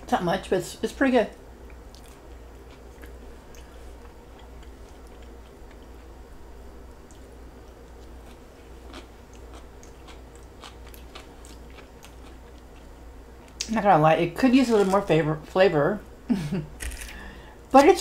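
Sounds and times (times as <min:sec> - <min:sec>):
person chewing: 0:01.6 - 0:06.1, 0:06.9 - 0:13.7.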